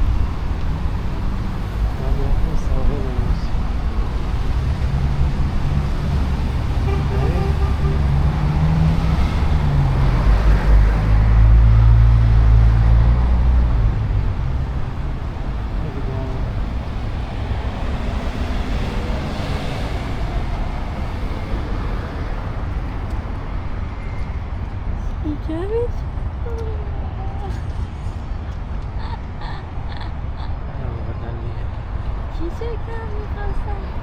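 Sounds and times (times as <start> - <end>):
heavy engine passing: 0.0 - 24.6
city traffic: 0.0 - 34.0
passers-by talking: 1.8 - 5.8, 6.4 - 9.4, 14.6 - 23.6, 24.8 - 34.0.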